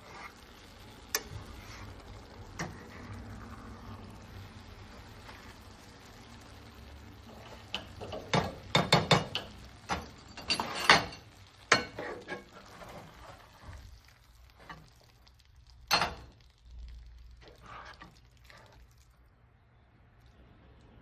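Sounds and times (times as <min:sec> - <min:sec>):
utensil clinking against cookware: 0:07.4 - 0:12.8.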